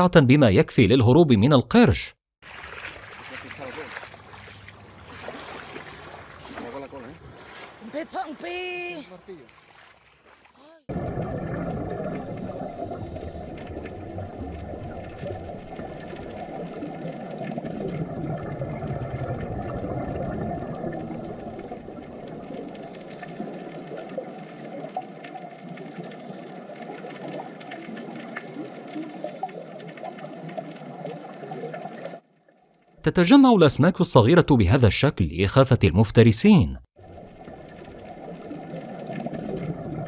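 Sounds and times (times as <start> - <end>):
muffled underwater water churning: 2.4 - 8.1, 9.2 - 32.4, 37.0 - 40.0.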